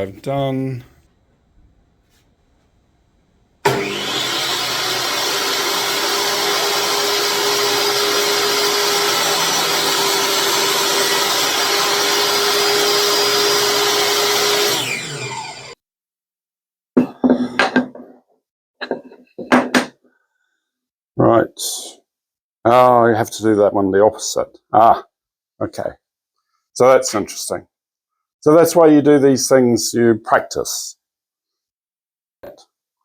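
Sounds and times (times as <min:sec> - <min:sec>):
table saw motor whining: 0:03.6 - 0:15.8.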